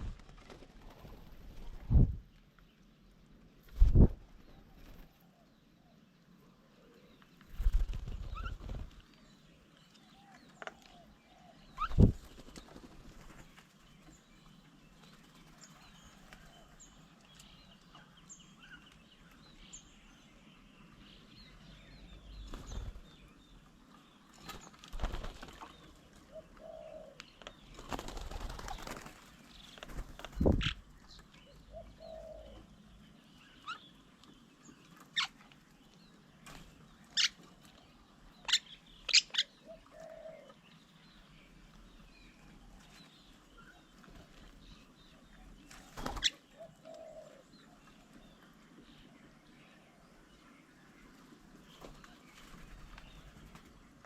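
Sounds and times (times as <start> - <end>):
bird wings flapping: 0.0 - 2.2, 3.7 - 5.2, 7.4 - 9.1, 11.8 - 13.7, 24.4 - 25.8, 27.7 - 30.8, 45.7 - 46.4
dove cooing: 26.2 - 27.2, 31.5 - 32.8, 39.4 - 40.6, 46.1 - 47.8.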